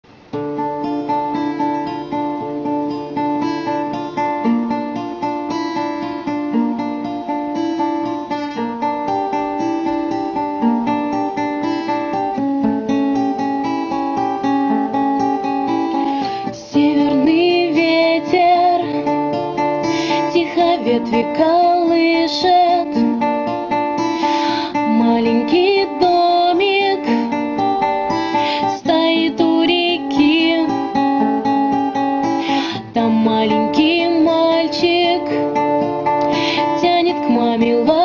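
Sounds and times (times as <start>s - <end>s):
acoustic guitar picking: 0.0s - 38.0s
person singing: 15.9s - 23.2s, 24.1s - 31.4s, 32.0s - 38.0s.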